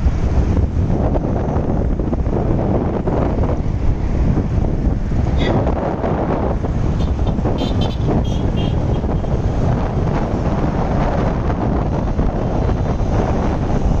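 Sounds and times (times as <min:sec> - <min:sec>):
road traffic: 0:00.0 - 0:14.0
wind buffeting microphone: 0:00.0 - 0:14.0
vehicle horn toots: 0:06.9 - 0:09.2.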